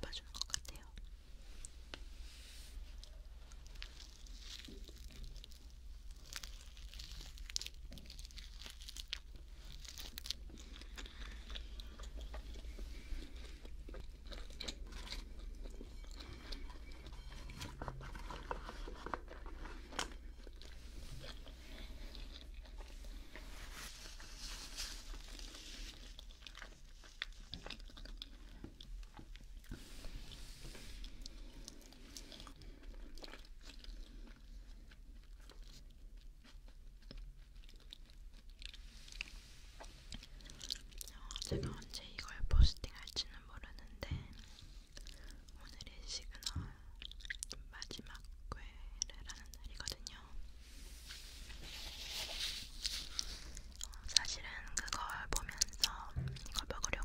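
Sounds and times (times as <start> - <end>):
person chewing close-up: 0.0 - 2.0, 3.0 - 50.5, 52.7 - 57.0.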